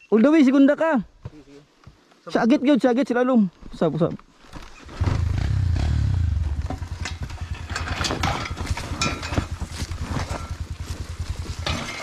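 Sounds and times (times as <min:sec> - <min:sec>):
dirt bike engine idling: 0:05.0 - 0:12.0.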